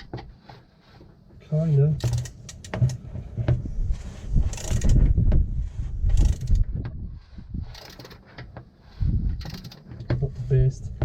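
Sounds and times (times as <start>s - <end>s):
socket wrench clicking on metal: 2.0s - 2.8s, 9.4s - 9.8s.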